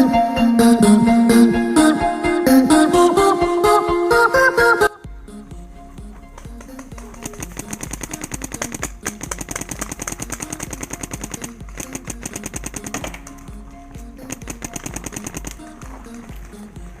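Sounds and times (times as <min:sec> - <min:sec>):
background music with steady beat: 0:00.0 - 0:17.0
paintball marker firing rapidly: 0:06.6 - 0:13.3, 0:14.3 - 0:16.6.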